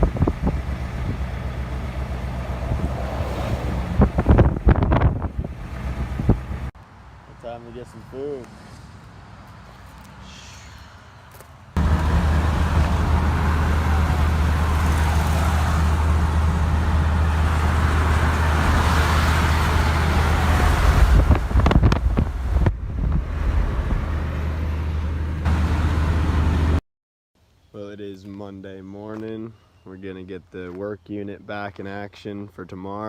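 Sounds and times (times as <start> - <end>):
tyre and wind noise: 0.0 - 6.7, 11.4 - 25.1
pickup truck engine drone: 0.0 - 6.8, 11.8 - 26.8.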